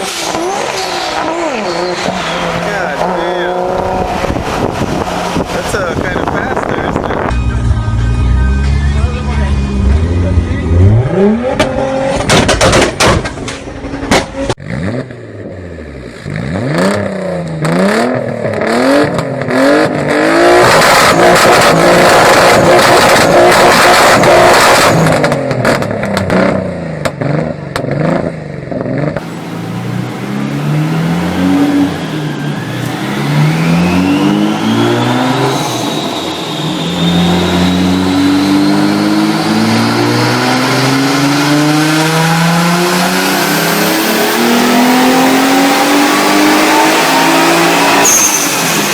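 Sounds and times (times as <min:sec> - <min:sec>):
car engine revving and accelerating: 0:00.0 - 0:13.0, 0:14.0 - 0:48.9
turbo whine: 0:29.2 - 0:39.9.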